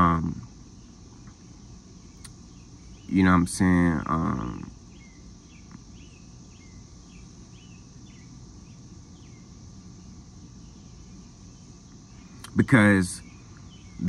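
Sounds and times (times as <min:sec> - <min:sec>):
low background noise: 0:00.0 - 0:14.0
bird chirping: 0:00.7 - 0:14.0.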